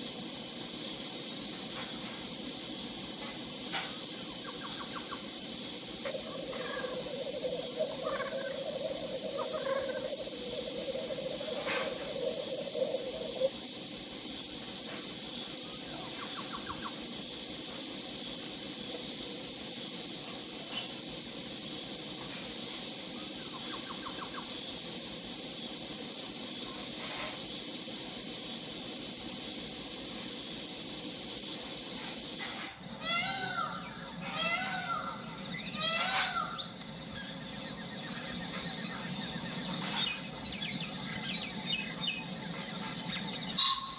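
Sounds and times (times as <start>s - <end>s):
insect trill: 0.0s - 43.9s
bird chirps: 1.7s - 13.8s, 31.9s - 43.9s.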